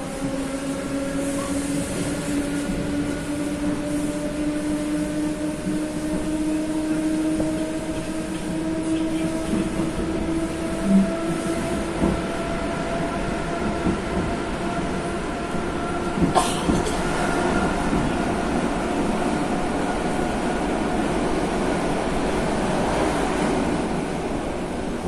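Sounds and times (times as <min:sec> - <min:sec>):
train running hum: 0:00.0 - 0:25.0.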